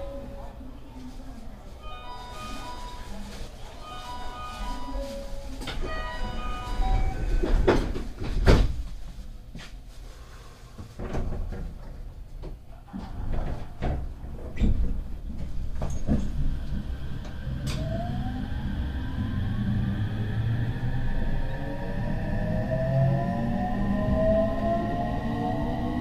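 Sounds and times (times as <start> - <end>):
rising train motor whine: 16.5 - 26.0.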